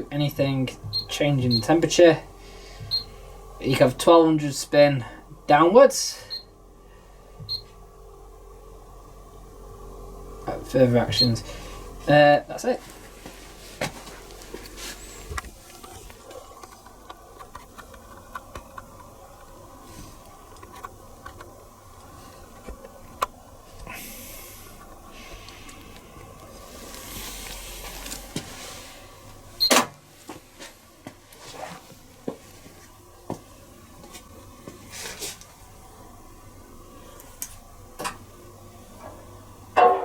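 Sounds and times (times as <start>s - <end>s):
faint steady hum: 0.0s - 40.0s
soft hisses: 26.5s - 29.1s.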